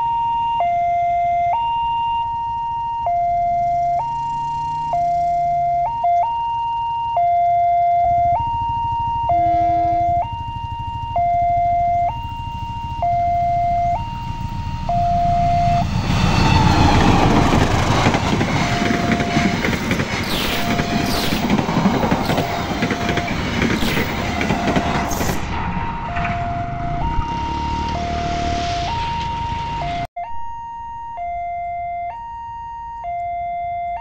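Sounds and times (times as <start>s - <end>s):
two-tone crossing alarm: 0.0s - 34.0s
train rumble and wheel clatter: 9.4s - 29.8s.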